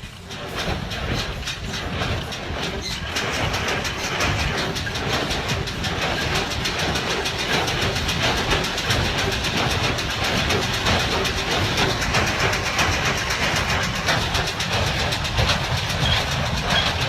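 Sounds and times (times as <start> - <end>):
baler mechanism clattering: 0.0 - 17.0
engine running: 0.0 - 17.0.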